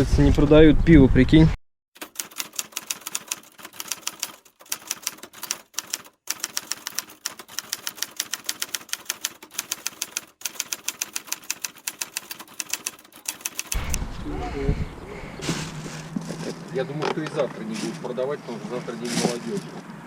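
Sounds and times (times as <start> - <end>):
typewriter keys clacking: 2.0 - 14.0.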